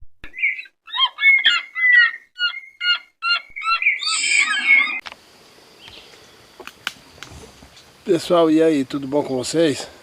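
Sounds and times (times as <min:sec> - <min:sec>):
bird chirping: 0:00.3 - 0:06.6.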